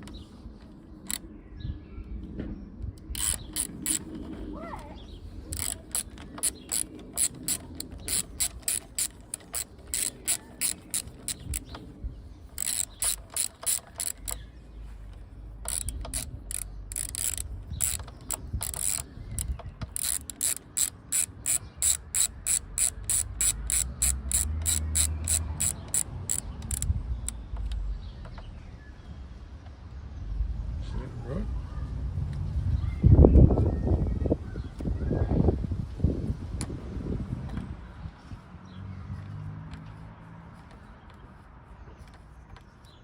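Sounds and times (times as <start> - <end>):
ratchet wrench clicking: 1.0 - 1.2, 3.0 - 4.2, 5.5 - 14.5, 15.1 - 27.8.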